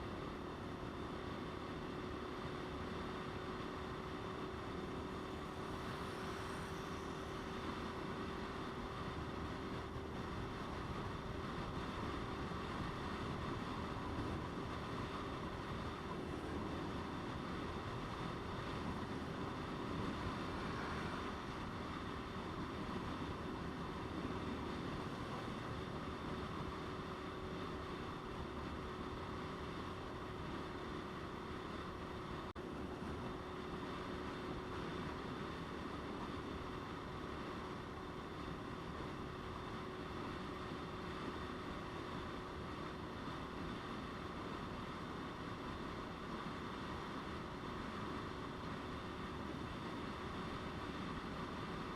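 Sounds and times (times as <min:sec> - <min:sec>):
motorcycle engine cruising: 0:00.0 - 0:43.2.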